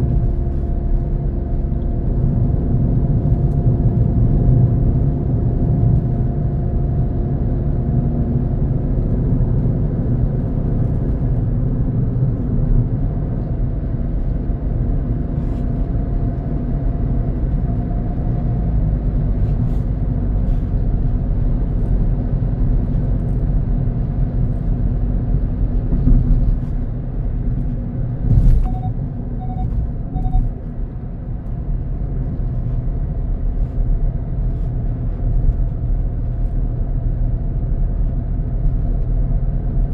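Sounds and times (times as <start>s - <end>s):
car engine and tyres rumbling: 0.0s - 39.9s
short beeps: 28.4s - 30.6s.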